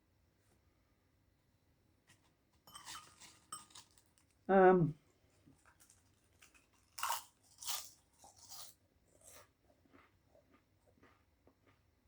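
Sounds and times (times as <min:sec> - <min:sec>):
quiet chewing: 0:05.0 - 0:11.9
crunching potato crisps: 0:05.3 - 0:11.8.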